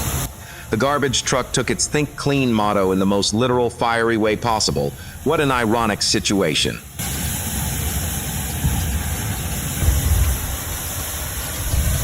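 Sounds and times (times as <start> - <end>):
constant hiss: 0.0 - 12.0
heavy engine low rumble: 0.0 - 12.0.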